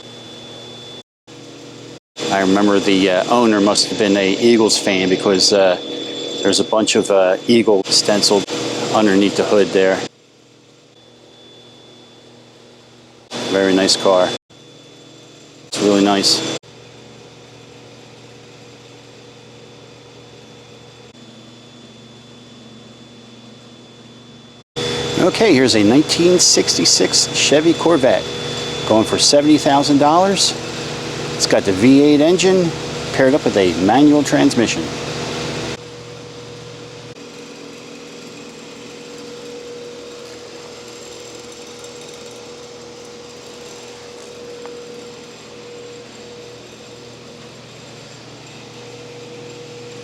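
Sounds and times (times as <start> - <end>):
faint high whine: 0.0 - 10.1, 10.7 - 16.6, 20.3 - 50.0
steady mechanical hum: 0.0 - 50.0
ventilation hum and hiss: 24.8 - 38.6.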